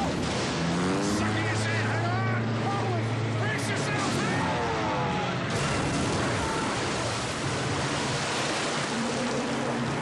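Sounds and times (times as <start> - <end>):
water rushing: 5.5 - 10.0.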